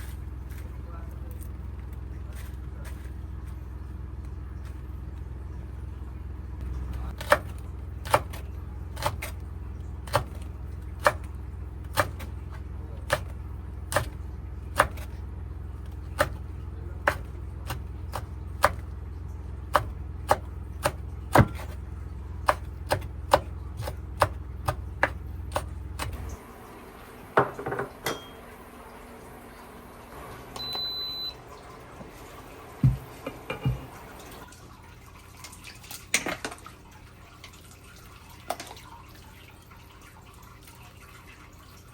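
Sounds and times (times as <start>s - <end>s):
steady low hum: 0.0s - 34.5s
short electronic beep: 30.6s - 31.4s.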